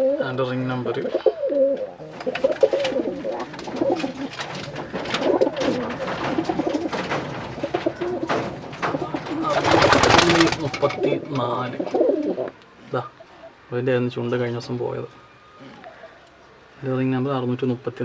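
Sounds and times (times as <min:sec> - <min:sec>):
loud rustling: 0:00.0 - 0:12.7
pigeons cooing: 0:00.0 - 0:16.9.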